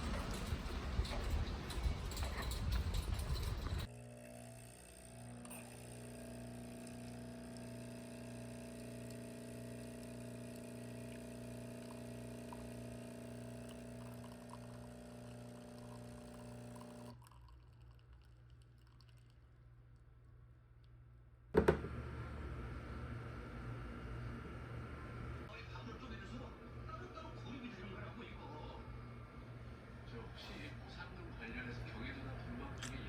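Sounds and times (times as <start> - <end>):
steady machine hum: 21.6 - 32.8.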